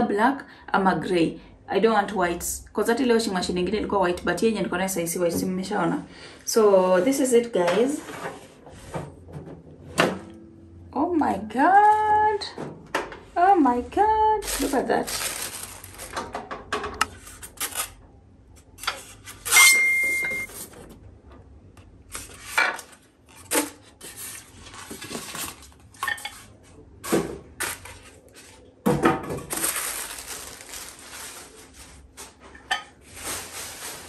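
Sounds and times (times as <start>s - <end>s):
rustling: 14.4s - 16.2s, 29.5s - 34.0s
short high tone: 19.6s - 20.5s.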